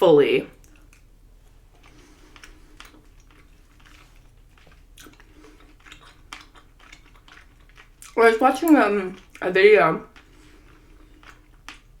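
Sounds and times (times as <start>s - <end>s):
close-up chewing: 0.5s - 12.0s
wet mouth clicks and smacks: 1.8s - 9.4s.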